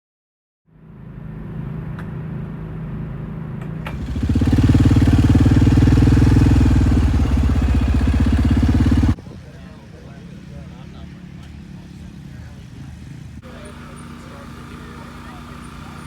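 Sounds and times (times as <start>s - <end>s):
motorcycle engine running: 3.9s - 9.2s, 13.4s - 16.0s.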